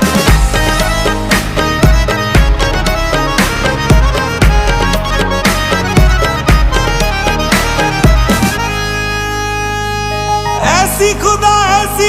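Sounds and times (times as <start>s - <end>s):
heavy bass drum hits: 0.0s - 5.0s
violin-like melody: 0.0s - 12.0s.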